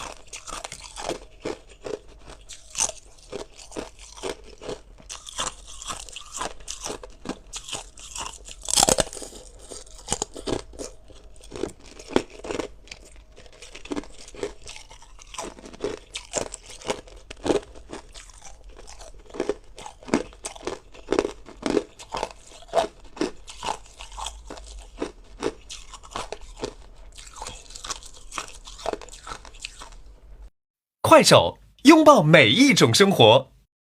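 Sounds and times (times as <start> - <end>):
ice being crunched by teeth: 0.0 - 30.0.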